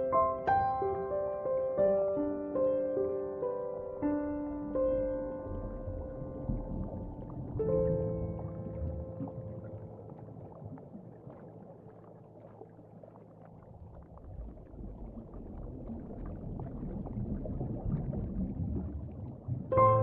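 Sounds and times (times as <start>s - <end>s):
soft music: 0.0s - 14.6s, 19.7s - 20.0s.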